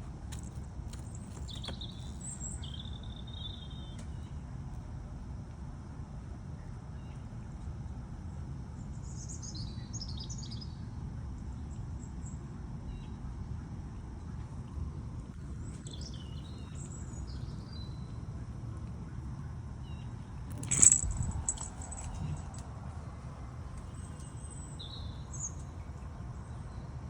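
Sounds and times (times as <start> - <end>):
low background rumble: 14.1 - 27.0.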